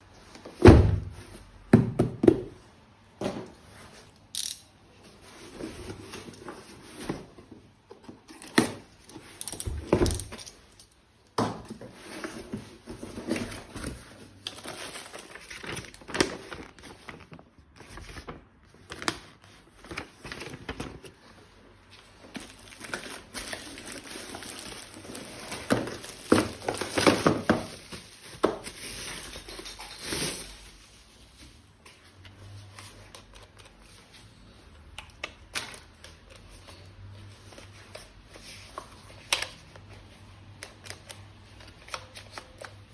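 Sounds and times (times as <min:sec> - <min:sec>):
wrapping crinkling and tearing: 0:14.2 - 0:21.2, 0:22.1 - 0:31.1.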